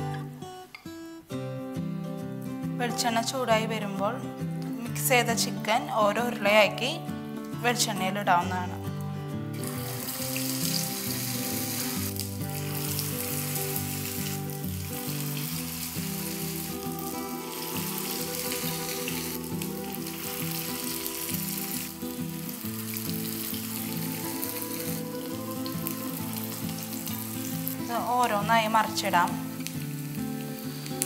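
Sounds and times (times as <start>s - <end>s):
background music: 0.0s - 31.0s
batter sizzling in hot oil: 9.5s - 31.0s.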